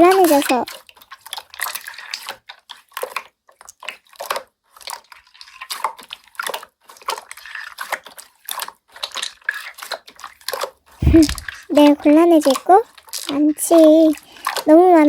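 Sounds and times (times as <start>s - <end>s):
slime squelching: 11.0s - 11.9s.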